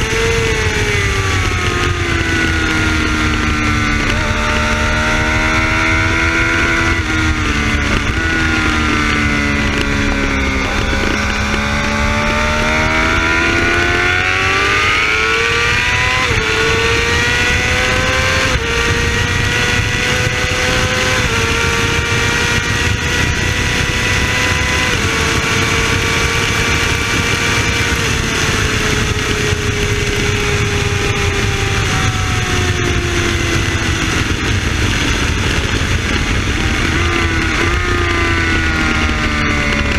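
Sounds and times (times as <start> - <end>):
motorcycle engine at high revs: 0.0 - 39.9
wind rush over microphone: 0.0 - 39.9.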